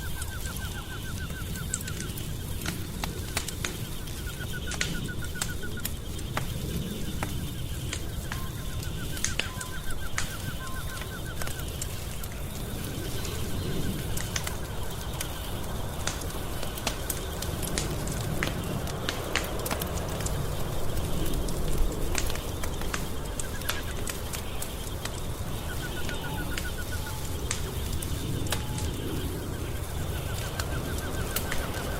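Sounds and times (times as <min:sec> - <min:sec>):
wood fire crackling: 0:00.0 - 0:31.9.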